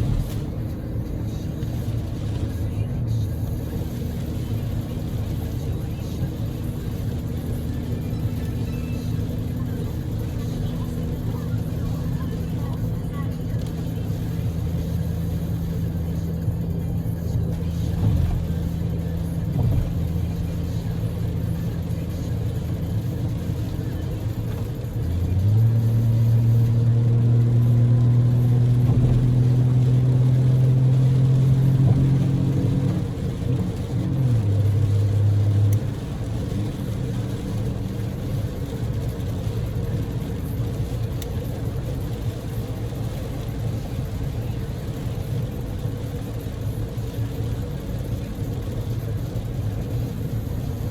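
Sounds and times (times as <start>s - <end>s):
car engine drone: 0.0s - 50.9s
rain and wet tyres hissing: 0.0s - 50.9s.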